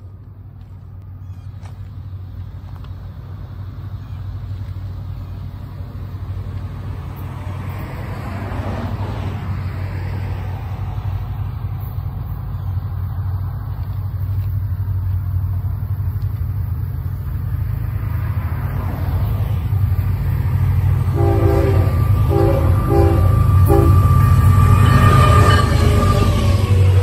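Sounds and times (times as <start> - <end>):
diesel train rumbling: 0.0 - 27.0
train air horn blasts: 21.0 - 27.0.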